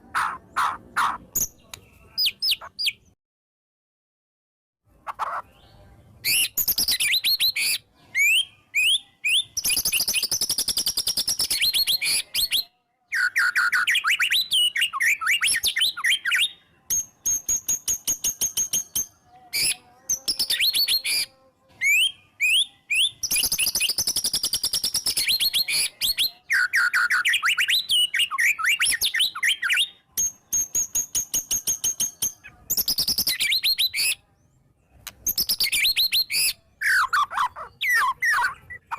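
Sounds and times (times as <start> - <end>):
bird singing with trills: 0.0 - 3.2, 4.9 - 38.9.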